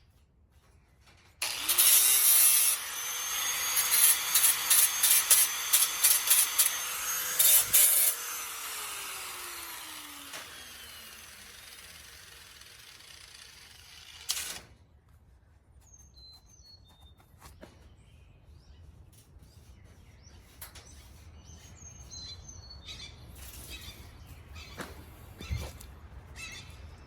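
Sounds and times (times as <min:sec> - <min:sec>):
birds chirping: 0:19.5 - 0:27.0.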